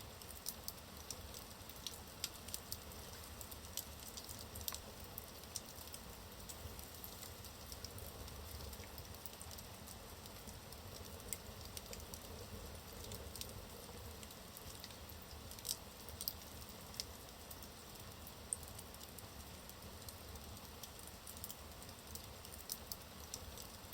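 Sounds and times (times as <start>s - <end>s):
logs crackling in a fireplace: 0.0s - 23.9s.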